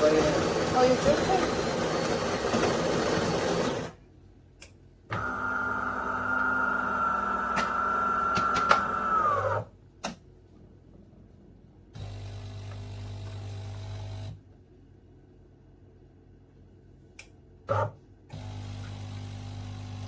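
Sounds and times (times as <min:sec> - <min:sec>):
coffee grinder whine: 0:00.0 - 0:04.0, 0:05.2 - 0:09.6.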